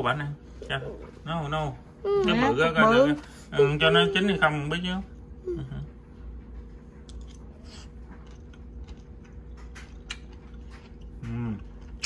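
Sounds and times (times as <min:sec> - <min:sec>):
steady low hum: 0:00.0 - 0:12.0
soft chewing: 0:05.1 - 0:12.0.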